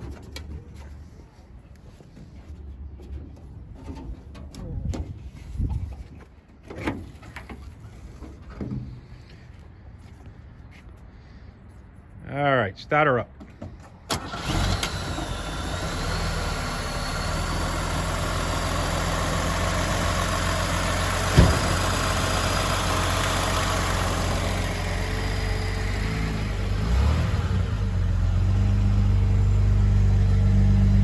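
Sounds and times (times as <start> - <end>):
car engine idling: 14.1 - 31.0.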